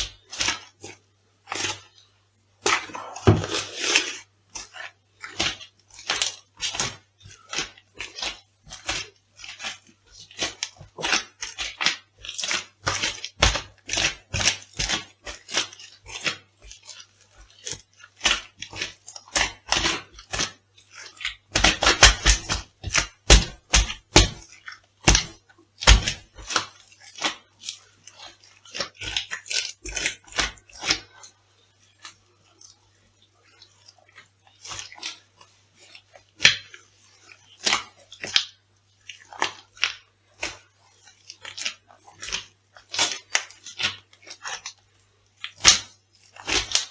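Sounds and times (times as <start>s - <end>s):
crisp food crunching underfoot: 2.7s - 13.3s.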